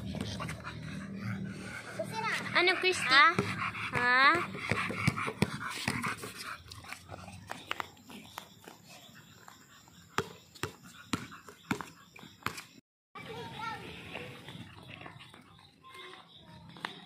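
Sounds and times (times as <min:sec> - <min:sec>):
basketball bouncing on concrete: 0:00.0 - 0:00.6, 0:02.5 - 0:06.4, 0:09.8 - 0:12.8
dog panting: 0:00.0 - 0:12.4.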